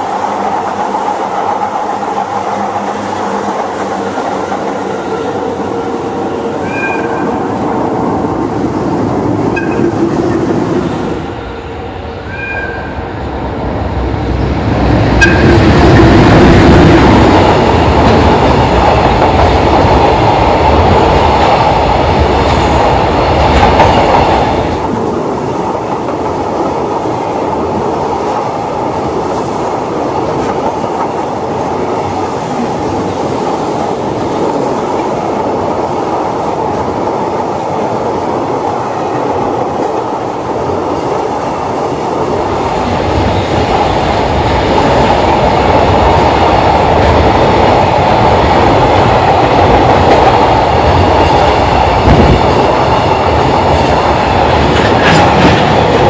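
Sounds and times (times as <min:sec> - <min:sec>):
freight train rolling past: 0:00.0 - 0:56.0
steel wheels on rails: 0:14.9 - 0:56.0.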